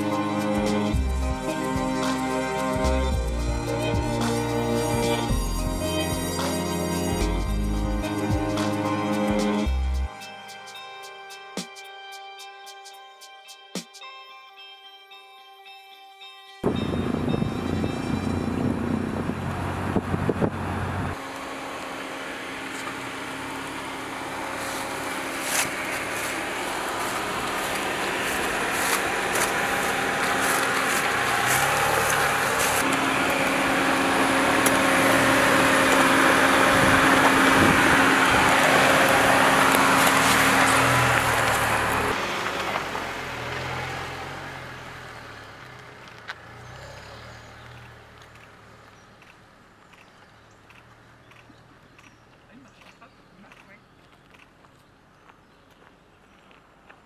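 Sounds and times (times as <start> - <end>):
car engine: 0.0 - 10.1, 16.6 - 53.7
tyres on rough ground: 19.7 - 57.0.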